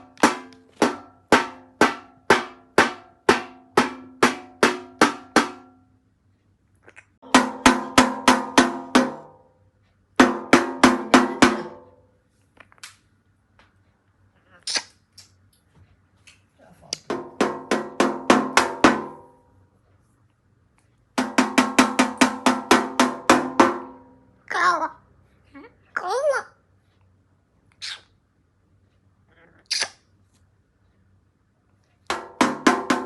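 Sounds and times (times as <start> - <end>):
parrot knocking on hollow object: 0.1 - 5.8, 7.2 - 9.4, 10.2 - 11.9, 17.1 - 19.4, 21.2 - 24.2, 32.1 - 33.0.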